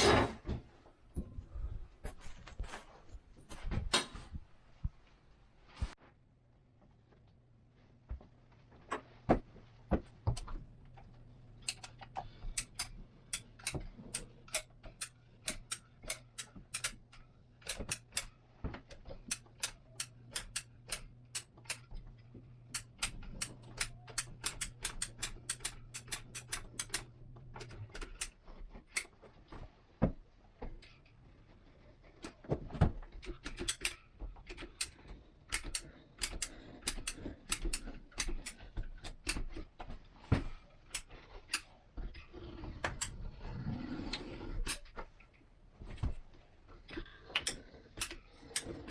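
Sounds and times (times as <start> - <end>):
sharp clicks and taps: 10.3 - 18.3.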